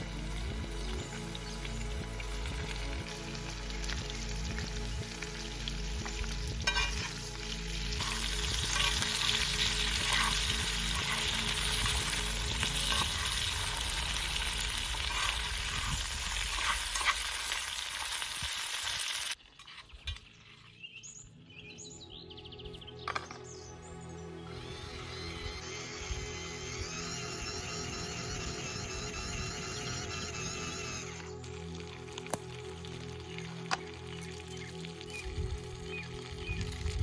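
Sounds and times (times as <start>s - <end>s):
food sizzling in a pan: 0.0s - 19.4s.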